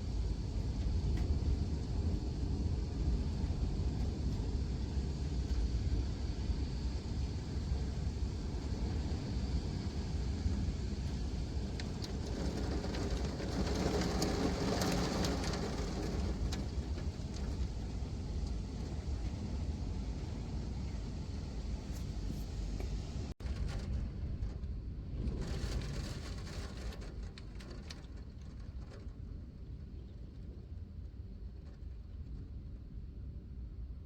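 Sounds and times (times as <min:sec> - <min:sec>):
rain: 0:00.0 - 0:32.6
low rumble: 0:00.0 - 0:34.0
wind: 0:00.0 - 0:34.0
vehicle passing on wet road: 0:11.2 - 0:18.5.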